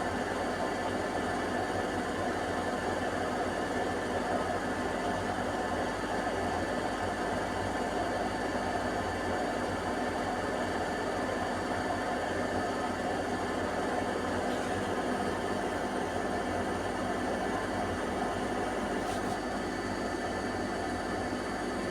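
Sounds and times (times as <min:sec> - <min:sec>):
washing machine spinning: 0:12.9 - 0:21.9.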